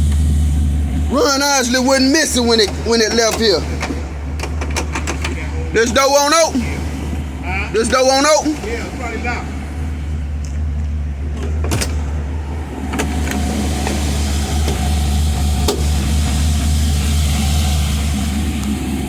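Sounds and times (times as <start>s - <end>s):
truck engine idling: 0.0s - 19.0s
truck door clicks and knocks: 4.4s - 5.4s, 11.3s - 12.2s.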